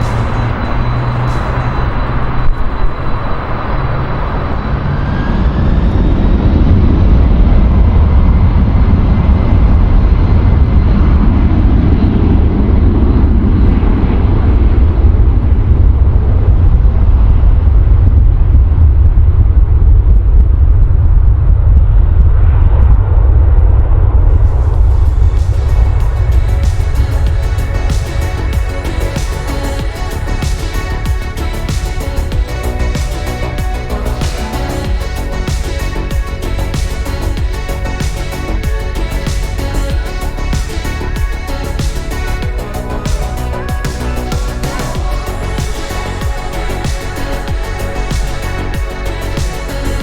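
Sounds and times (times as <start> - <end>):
jet engines rumbling: 0.0 - 20.3.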